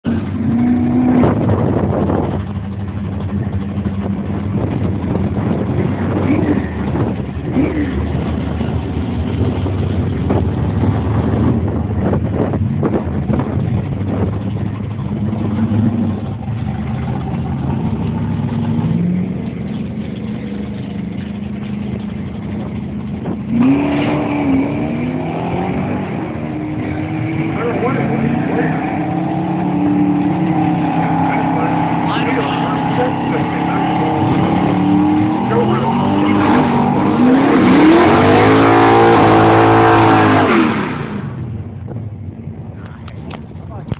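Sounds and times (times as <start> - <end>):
drag race car engines revving: 0.0 - 43.9.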